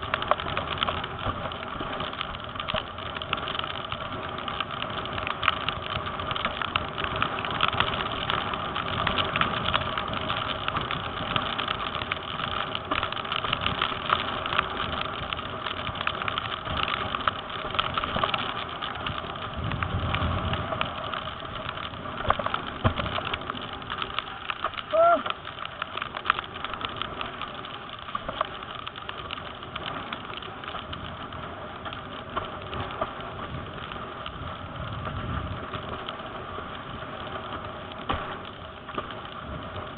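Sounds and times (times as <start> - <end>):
wind and water rushing: 19.4 - 23.6.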